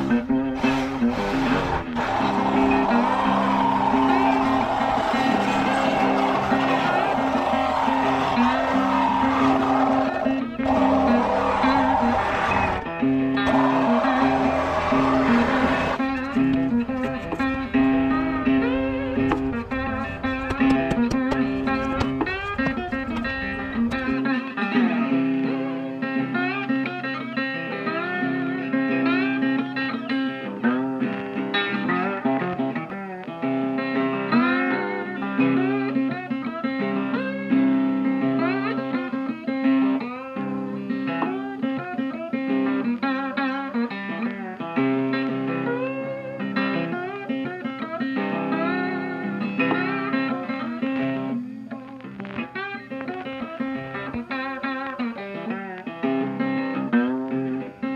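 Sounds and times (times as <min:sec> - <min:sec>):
plucked guitar with sliding notes: 0:00.0 - 0:57.9.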